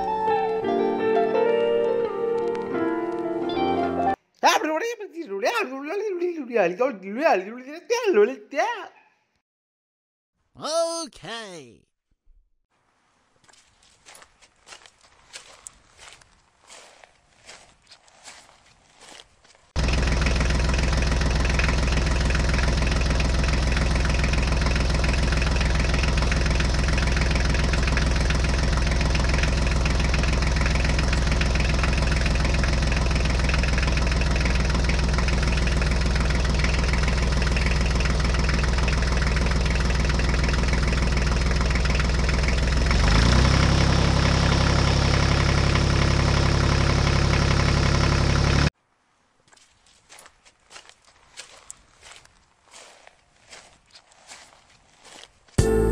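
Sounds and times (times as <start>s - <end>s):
diesel tractor engine running: 19.8s - 48.7s.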